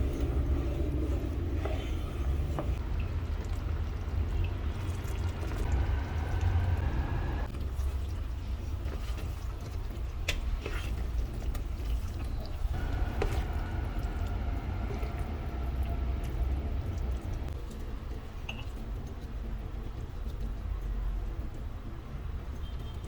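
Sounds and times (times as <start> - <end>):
steady low rumble: 0.0 - 7.5, 12.7 - 17.6
water running: 0.0 - 17.9.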